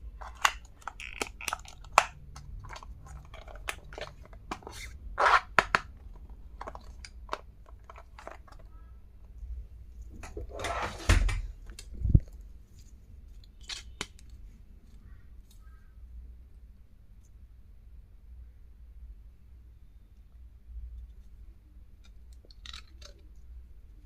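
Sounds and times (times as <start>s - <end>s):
packaging crinkling: 0.1s - 8.7s.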